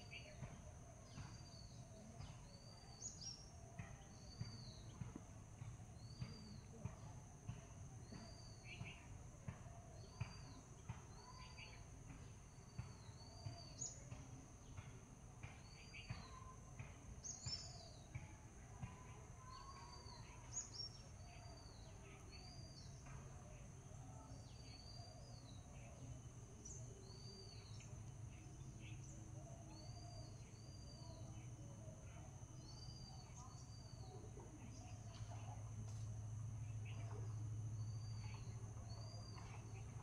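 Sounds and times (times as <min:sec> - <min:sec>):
faint bird chirps: 0:00.0 - 0:40.0.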